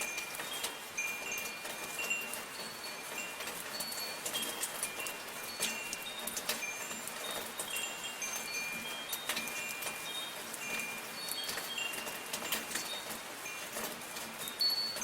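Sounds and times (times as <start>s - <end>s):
soft rain: 0.0s - 15.0s
wind chimes ringing: 0.0s - 15.0s.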